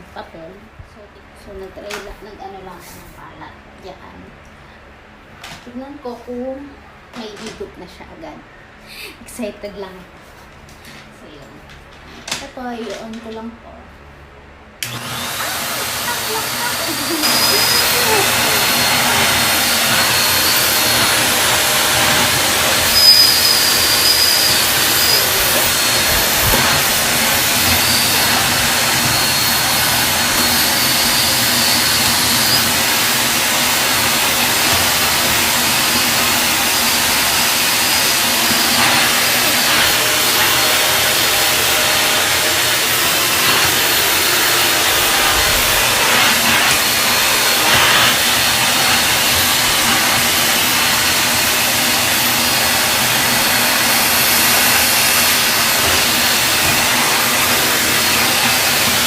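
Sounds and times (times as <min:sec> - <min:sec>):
vacuum cleaner running: 0:14.8 - 0:59.0.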